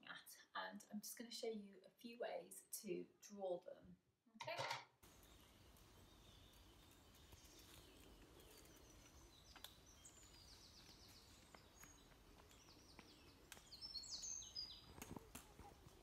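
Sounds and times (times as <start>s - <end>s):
birds chirping and trilling: 5.0s - 16.0s.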